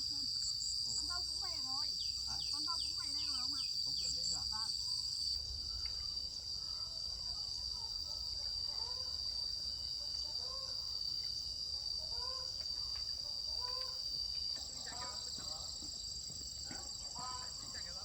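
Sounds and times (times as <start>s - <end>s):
insects buzzing high-pitched: 0.0s - 5.3s.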